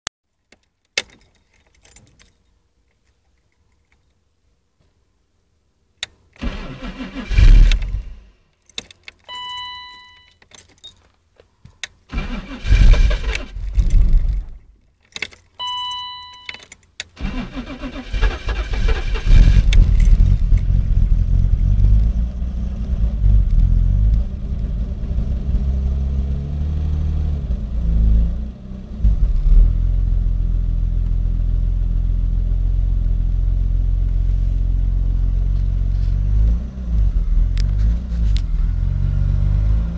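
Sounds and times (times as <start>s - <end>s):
engine cranking: 6.4s - 8.1s, 12.1s - 14.6s, 17.2s - 20.8s
electronic beep: 15.6s - 16.6s.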